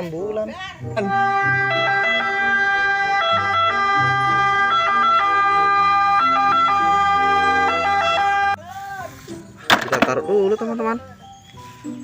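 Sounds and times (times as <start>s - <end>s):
toy siren electronic tones: 1.4s - 8.6s.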